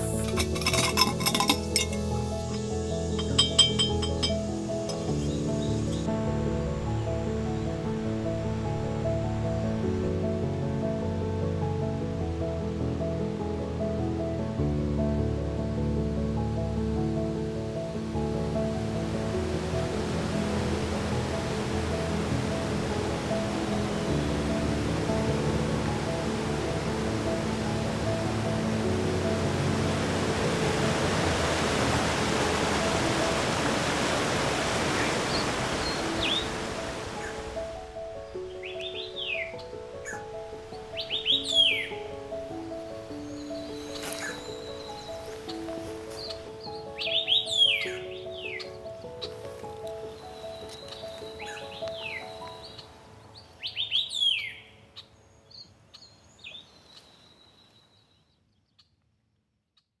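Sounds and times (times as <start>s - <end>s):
thin high tone: 0.0s - 6.2s
birds chirping: 0.0s - 6.4s
stream water rushing: 0.0s - 10.5s, 17.2s - 48.5s.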